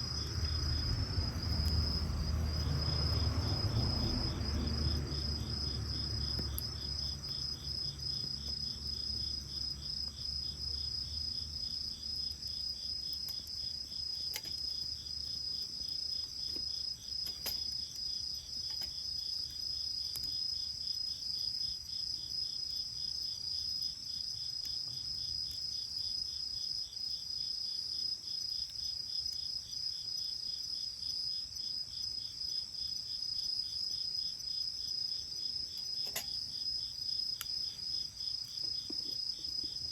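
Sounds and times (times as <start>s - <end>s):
bonfire popping: 0.0s - 4.1s
low rumble: 0.0s - 6.3s
crickets trilling: 0.0s - 39.9s.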